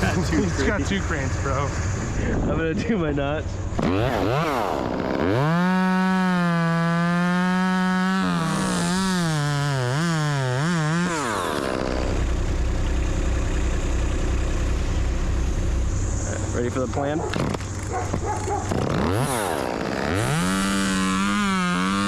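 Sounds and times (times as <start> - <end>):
chainsaw cutting: 3.7 - 12.4, 16.1 - 22.0.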